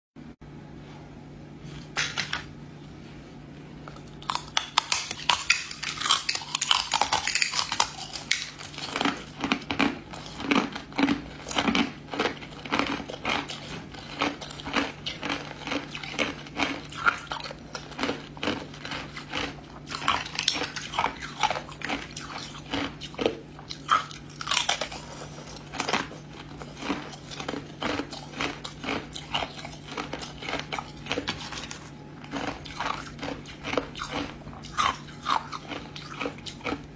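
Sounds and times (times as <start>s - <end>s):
ice crunching between teeth: 3.9s - 36.9s.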